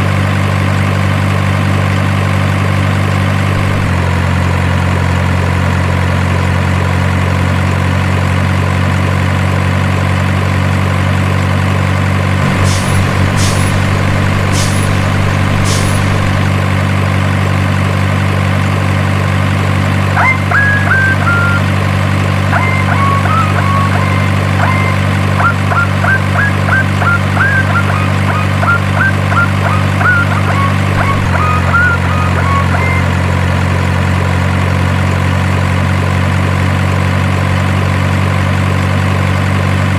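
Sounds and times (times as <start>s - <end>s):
idling truck engine drone: 0.0s - 39.9s
short high chirps: 12.4s - 16.7s, 20.2s - 21.7s, 22.5s - 33.2s.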